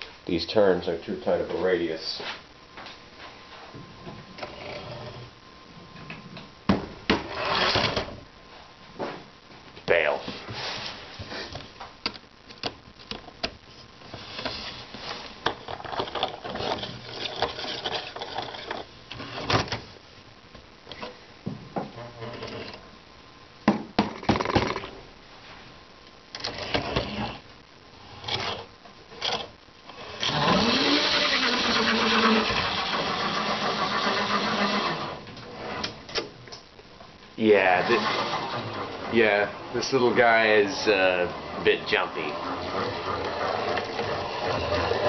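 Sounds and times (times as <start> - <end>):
model train motor whirring: 29.2 - 35.9, 37.8 - 38.9, 41.4 - 45.0.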